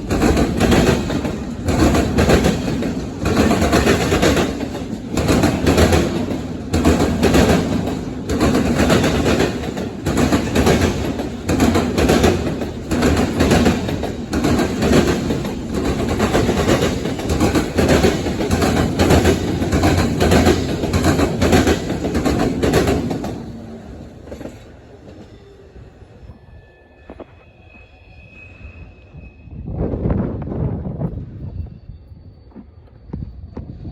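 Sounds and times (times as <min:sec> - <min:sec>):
train wheels clacking: 0:00.0 - 0:25.6
train rumbling: 0:00.0 - 0:33.9.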